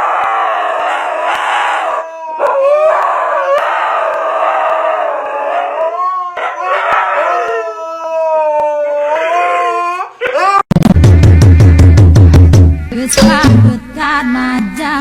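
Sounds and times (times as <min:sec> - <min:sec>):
dog howling: 0:00.0 - 0:10.6.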